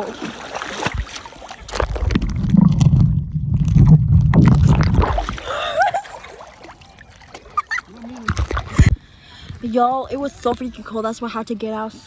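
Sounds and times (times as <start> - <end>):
underwater rumble and gurgle: 1.0 - 5.8, 8.2 - 10.6.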